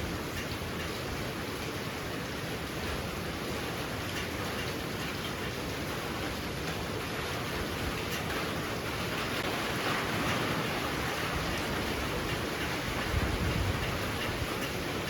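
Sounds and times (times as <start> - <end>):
heavy rain pouring: 0.0 - 15.0
strong wind: 5.0 - 15.0
wind gust on microphone: 9.8 - 15.0.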